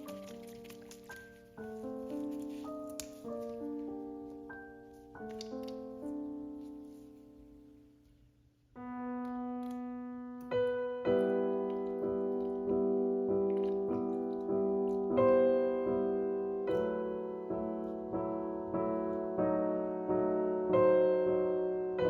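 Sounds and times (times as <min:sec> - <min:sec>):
solo piano chords: 0:00.0 - 0:22.0.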